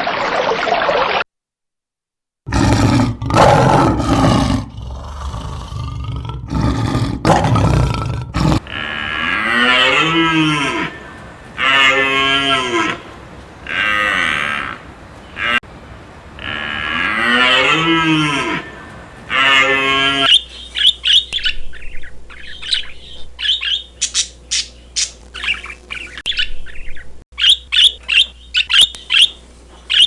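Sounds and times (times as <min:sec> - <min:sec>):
cattle mooing: 0:08.5 - 0:20.3
loud rough noisy bursts: 0:08.6 - 0:20.3.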